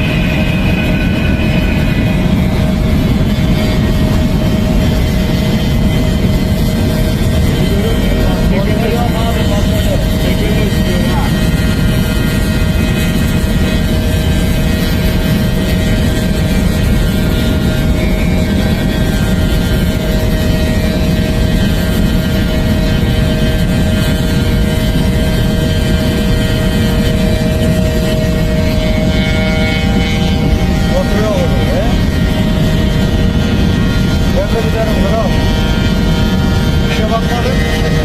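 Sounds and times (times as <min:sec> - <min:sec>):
heavy low rushing noise: 0:00.0 - 0:38.0
vehicle engine drone: 0:00.0 - 0:38.0.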